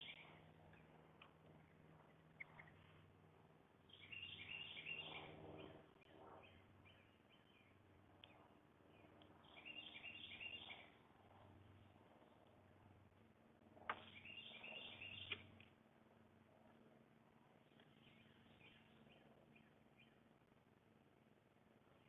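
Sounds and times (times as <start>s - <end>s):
faint songbird chirps: 0.0s - 3.1s, 3.8s - 12.4s, 13.9s - 15.7s, 17.6s - 20.4s.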